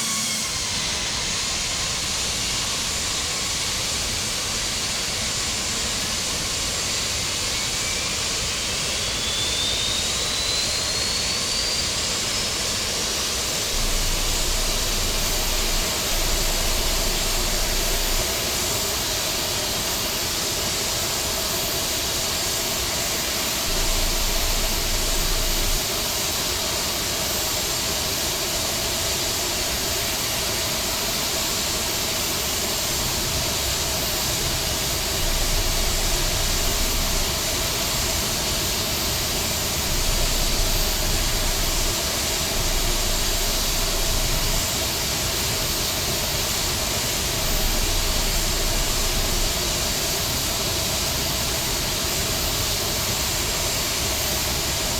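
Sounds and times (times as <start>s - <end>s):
aircraft engines hissing: 0.0s - 54.9s
low rumble: 13.7s - 18.4s, 23.7s - 26.0s, 34.5s - 38.3s, 39.6s - 45.6s, 46.9s - 50.3s.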